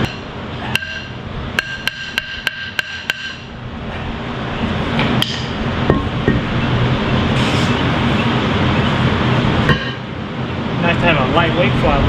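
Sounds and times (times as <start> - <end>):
hammer striking steel: 0.0 - 3.5, 5.2 - 6.5, 9.7 - 10.1
steady low hum: 0.0 - 12.0.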